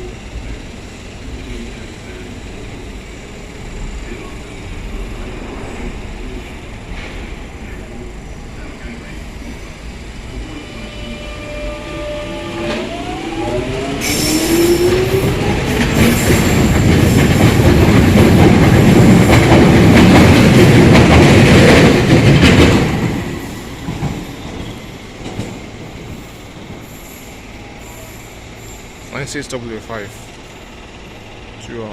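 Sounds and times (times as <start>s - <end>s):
wheels rumbling on rail: 0.0s - 31.9s
high wheel squeal: 10.4s - 16.7s, 26.9s - 29.4s.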